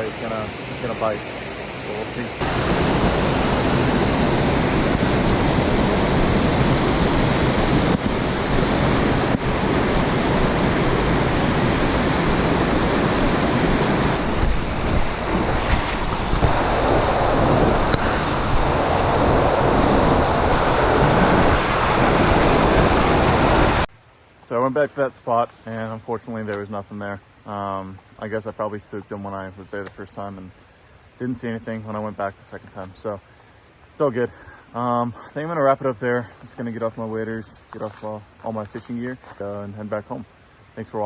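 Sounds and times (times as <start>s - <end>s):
creek water rushing: 0.0s - 41.0s
wind noise on microphone: 2.4s - 23.9s.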